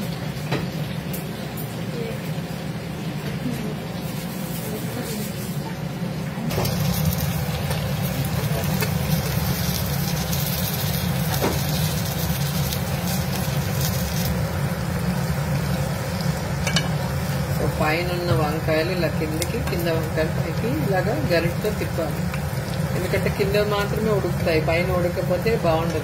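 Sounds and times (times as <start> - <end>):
food sizzling in hot oil: 6.5 - 26.0.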